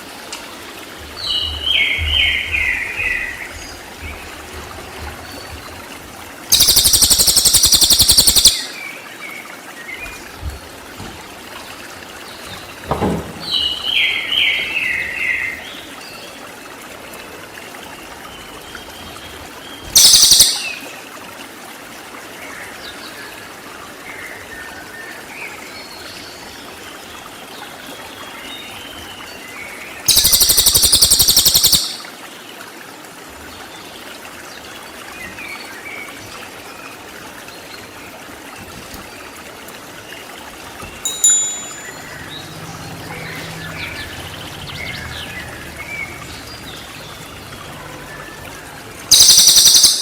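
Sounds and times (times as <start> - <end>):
soft bird chirps: 6.5 - 8.7, 20.0 - 20.8, 30.1 - 32.1, 43.1 - 50.0
songbird rapid high trills: 6.5 - 8.7, 20.0 - 20.8, 30.1 - 32.1, 49.1 - 50.0.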